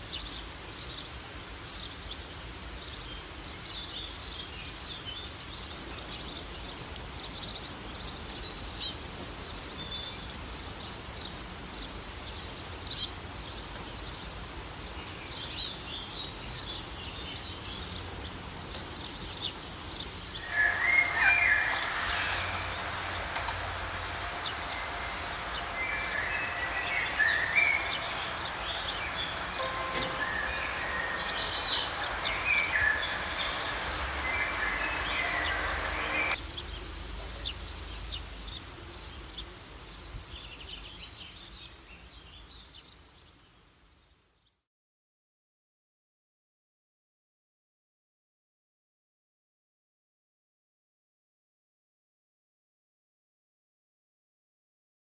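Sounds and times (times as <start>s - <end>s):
steady outdoor hiss: 0.0s - 44.1s
wild birds chirping and trilling: 11.7s - 39.5s.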